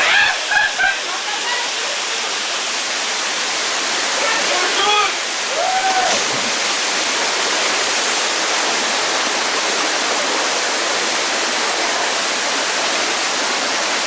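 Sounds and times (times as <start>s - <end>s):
waterfall and stream rushing: 0.0s - 14.0s.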